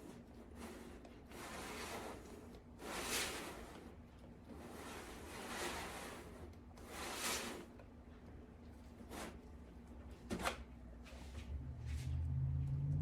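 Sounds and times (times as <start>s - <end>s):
spatula stirring thick cream: 0.0s - 10.1s.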